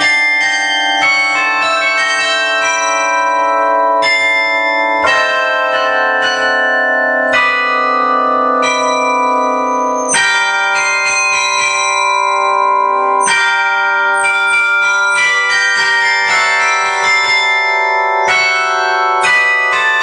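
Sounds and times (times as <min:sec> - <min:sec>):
carillon bells playing a melody: 0:00.0 - 0:20.0.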